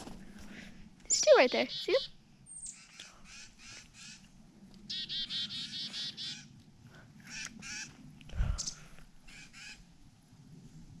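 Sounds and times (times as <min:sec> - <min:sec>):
songbirds calling: 0:01.0 - 0:10.0
harsh repeated bird notes: 0:01.1 - 0:04.2, 0:04.9 - 0:06.5, 0:08.5 - 0:09.8.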